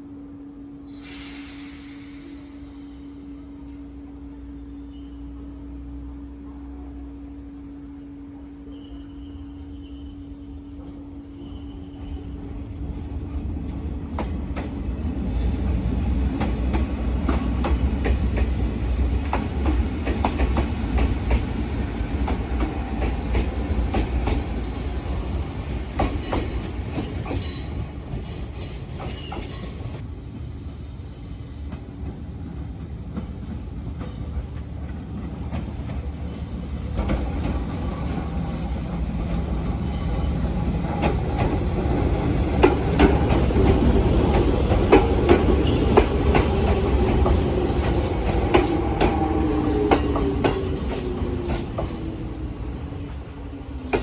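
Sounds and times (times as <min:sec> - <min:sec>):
electric train wheels clacking: 0:10.8 - 0:30.0, 0:32.8 - 0:54.0.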